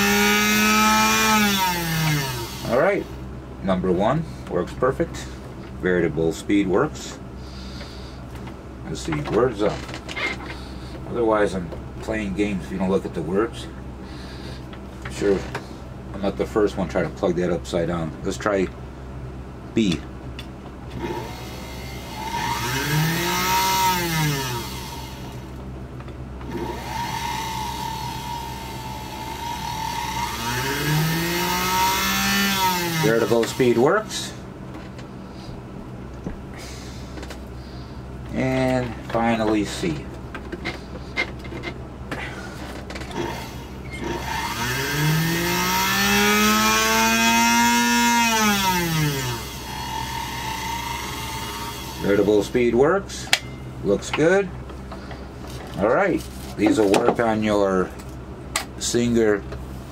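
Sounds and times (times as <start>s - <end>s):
sewing machine motor whining: 21.0s - 25.4s, 26.5s - 33.8s, 43.1s - 52.4s
sewing machine motor running: 26.5s - 33.7s.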